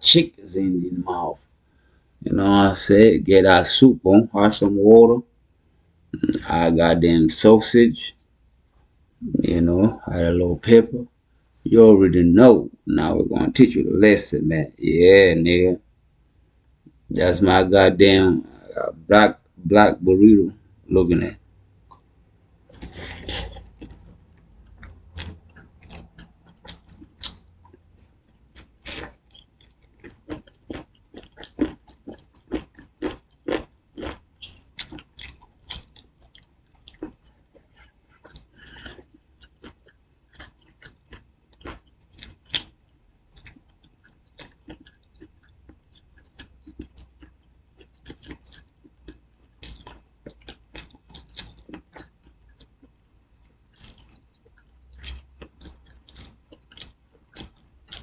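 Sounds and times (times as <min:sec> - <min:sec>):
person chewing crunchy food: 0:22.7 - 0:58.0.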